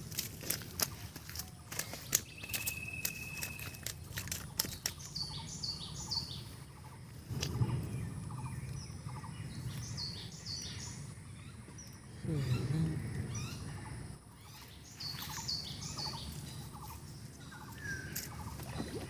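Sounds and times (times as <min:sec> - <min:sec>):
dry leaves crackling: 0:00.0 - 0:07.6
low rumble: 0:07.2 - 0:10.1.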